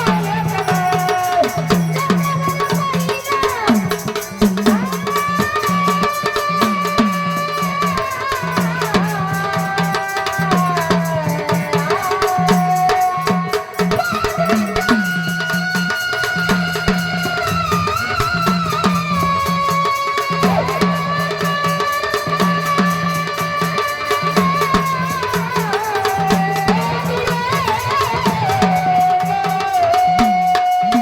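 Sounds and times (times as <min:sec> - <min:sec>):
rattling percussion: 0:00.0 - 0:31.0
drum beating with bending bass: 0:10.5 - 0:31.0.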